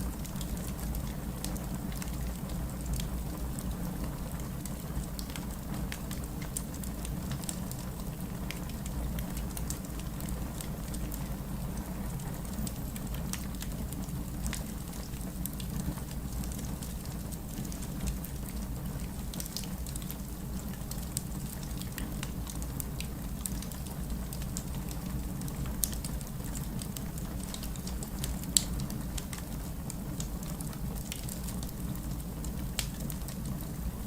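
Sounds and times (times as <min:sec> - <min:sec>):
fireplace crackling: 0:00.1 - 0:34.0.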